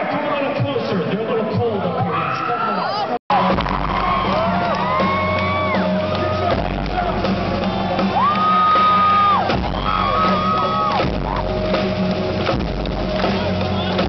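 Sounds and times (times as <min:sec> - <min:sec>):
arena crowd cheering: 0:00.0 - 0:14.0
high screams and whoops: 0:02.1 - 0:06.5, 0:08.0 - 0:11.5
rock concert music: 0:03.3 - 0:14.0.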